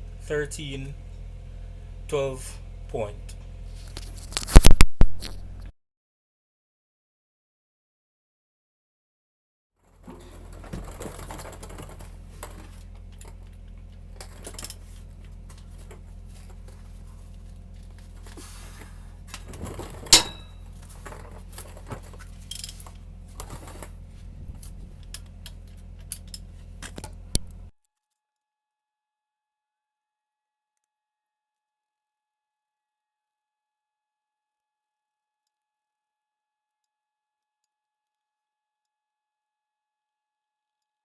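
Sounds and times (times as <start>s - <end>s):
steady low hum: 0.0s - 5.7s, 10.0s - 27.7s
metallic tool clink: 19.9s - 20.7s.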